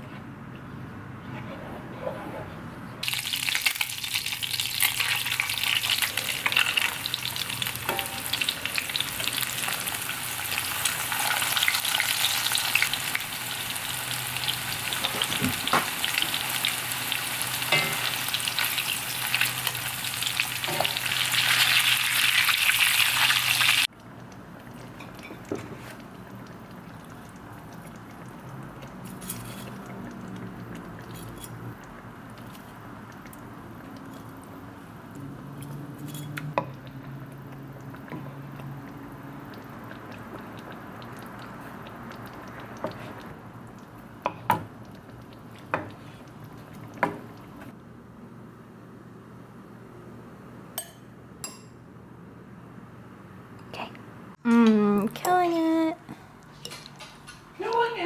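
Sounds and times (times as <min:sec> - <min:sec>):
food sizzling in hot oil: 0:03.0 - 0:23.9.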